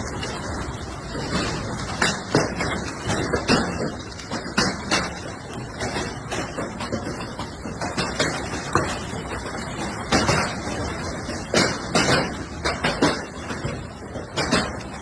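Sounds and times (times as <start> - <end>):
hailstones clattering: 0.0 - 15.0.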